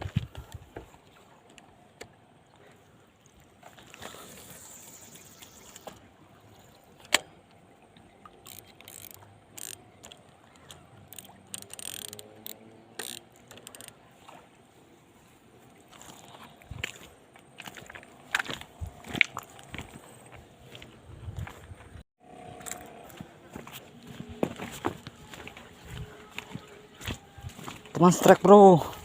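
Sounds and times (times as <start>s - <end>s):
fishing reel clicks: 8.4s - 14.0s.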